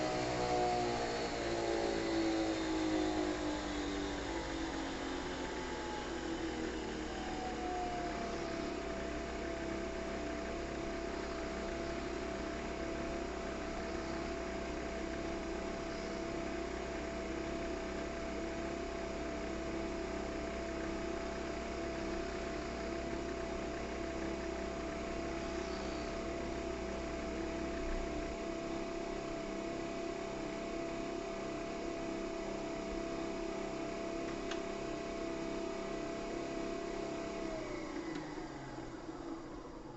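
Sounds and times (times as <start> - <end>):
low hum: 0.0 - 28.6
coffee machine motor whirring: 0.0 - 39.9.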